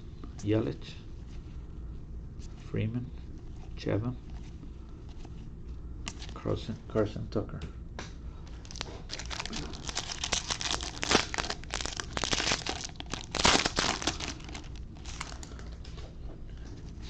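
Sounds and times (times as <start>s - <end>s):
foil wrapper tearing and crinkling: 8.6s - 15.6s.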